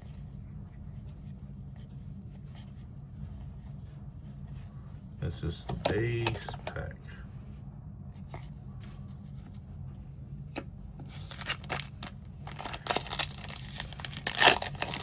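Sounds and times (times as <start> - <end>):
foil wrapper crinkling: 11.2 - 15.0.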